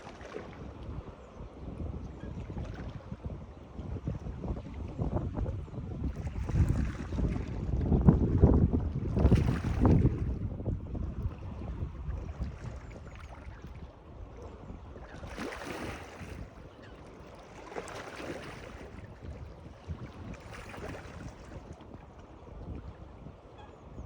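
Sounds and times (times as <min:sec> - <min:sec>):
water washing and lapping: 0:00.0 - 0:01.0, 0:06.1 - 0:22.7
wind rumbling on microphone: 0:00.0 - 0:24.0.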